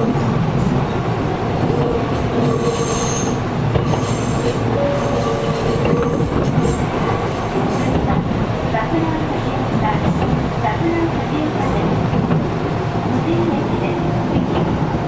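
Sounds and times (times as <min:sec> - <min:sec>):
train wheels rumbling on track: 0:00.0 - 0:15.0
high-pitched wheel squeal: 0:02.6 - 0:03.4.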